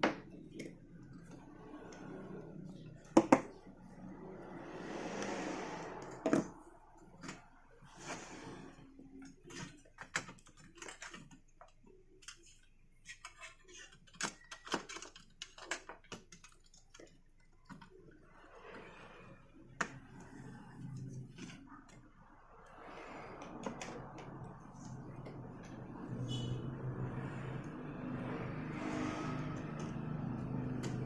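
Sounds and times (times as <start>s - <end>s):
brief hissy swells: 4.4s - 6.2s
small tools clicking and tapping: 9.2s - 18.1s, 29.5s - 31.0s.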